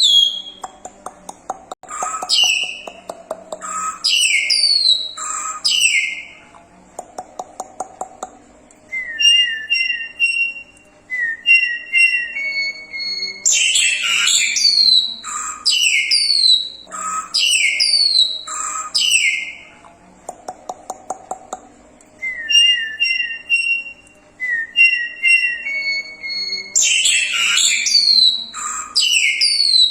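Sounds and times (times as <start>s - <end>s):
myna whistled song: 0.0s - 0.7s, 1.8s - 3.0s, 3.6s - 6.4s, 8.9s - 19.7s, 22.2s - 29.9s.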